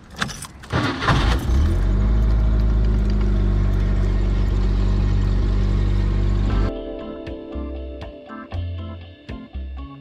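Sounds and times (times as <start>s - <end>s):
car engine starting and idling: 0.0s - 6.7s.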